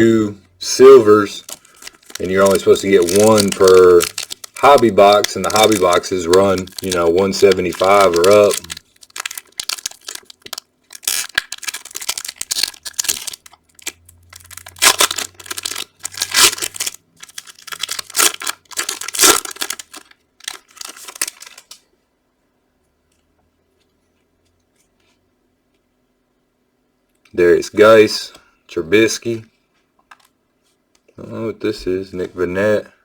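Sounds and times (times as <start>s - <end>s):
foil wrapper crinkling: 0.8s - 21.8s.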